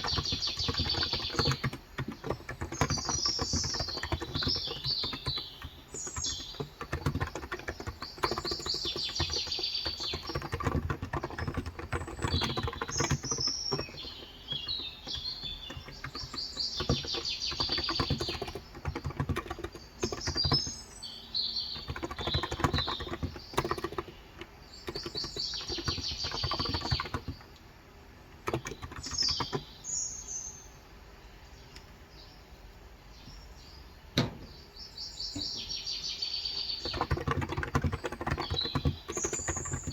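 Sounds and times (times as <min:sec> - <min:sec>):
keyboard typing: 0:00.0 - 0:20.8, 0:21.7 - 0:27.5, 0:28.3 - 0:29.7, 0:36.8 - 0:39.9
birds singing trilled phrases: 0:00.0 - 0:27.4, 0:28.4 - 0:32.5, 0:33.1 - 0:39.9.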